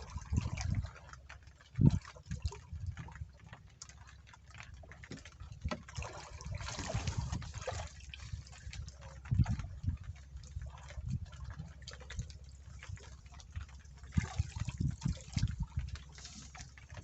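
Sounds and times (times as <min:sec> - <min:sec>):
water sloshing and trickling: 0:00.0 - 0:17.0.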